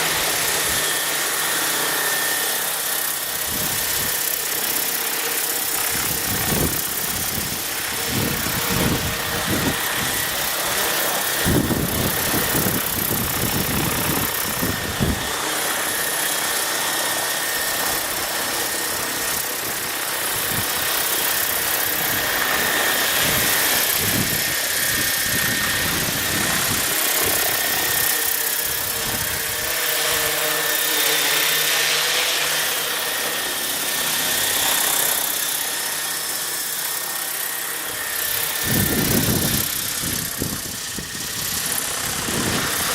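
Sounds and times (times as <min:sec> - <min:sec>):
rc helicopter motor whine: 0:00.0 - 0:42.9
wind buffeting microphone: 0:05.9 - 0:15.3, 0:23.1 - 0:28.1, 0:28.7 - 0:29.7, 0:38.6 - 0:42.9.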